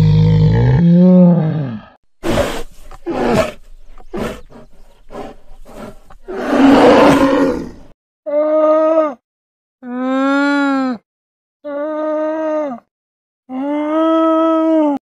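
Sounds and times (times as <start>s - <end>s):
polar bear growling: 0.0s - 7.9s
polar bear huffing: 2.2s - 7.8s.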